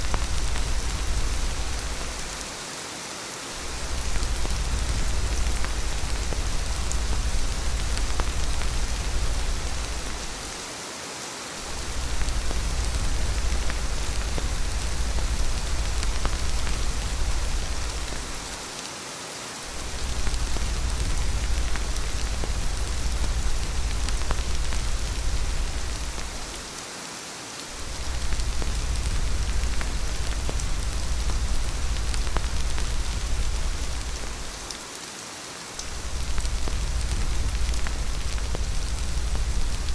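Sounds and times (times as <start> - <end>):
steady rain hissing: 0.0 - 39.9
deep low rumble: 3.7 - 10.4, 11.7 - 18.5, 19.8 - 26.6, 27.8 - 34.6, 35.9 - 39.9.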